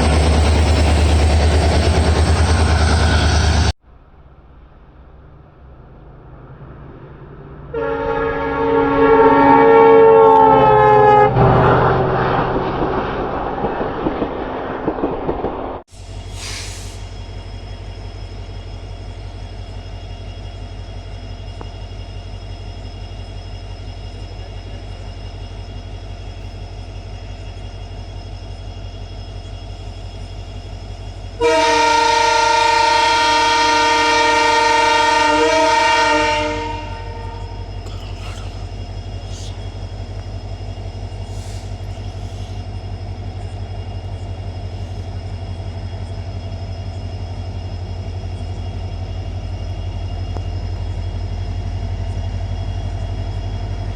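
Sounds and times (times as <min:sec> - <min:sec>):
diesel locomotive idling: 0:00.0 - 0:53.9
multi-tone locomotive horn: 0:07.7 - 0:12.3, 0:31.4 - 0:37.7.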